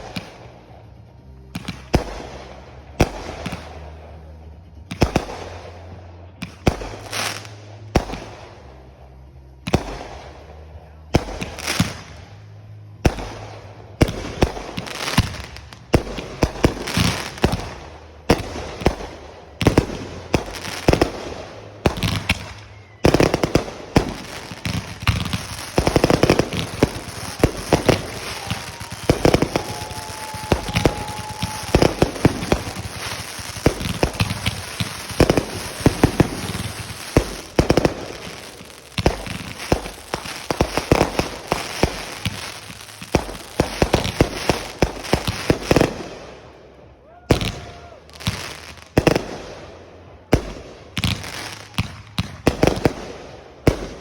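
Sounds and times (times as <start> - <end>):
fireworks bangs and crackling: 0.0 - 54.0
firework whistle: 25.0 - 38.4.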